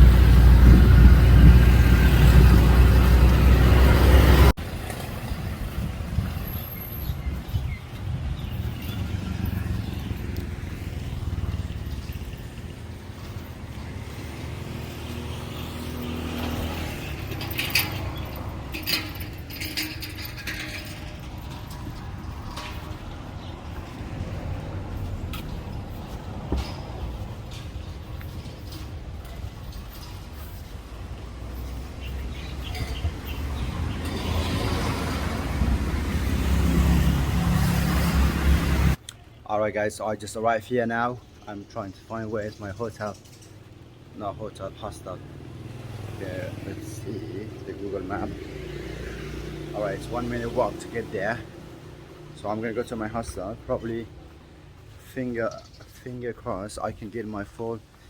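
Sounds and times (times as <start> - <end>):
vehicle engine rumbling: 0.0 - 39.0.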